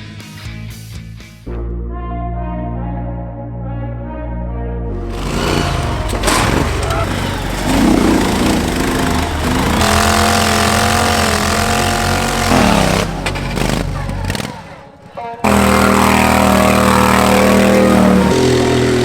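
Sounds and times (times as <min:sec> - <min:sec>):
lawn tractor engine running hard: 0:05.1 - 0:19.0
people's voices: 0:05.1 - 0:19.0.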